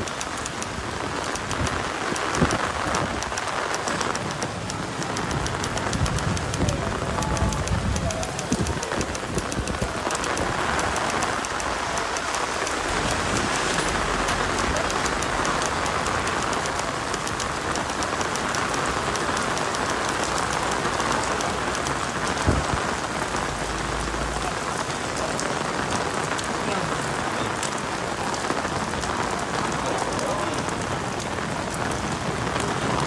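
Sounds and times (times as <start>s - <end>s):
heavy rain on umbrella: 0.0s - 33.0s.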